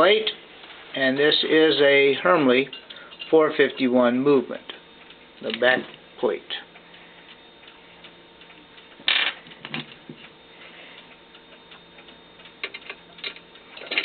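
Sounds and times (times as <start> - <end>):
clock ticking: 4.6 - 9.1, 11.0 - 13.7.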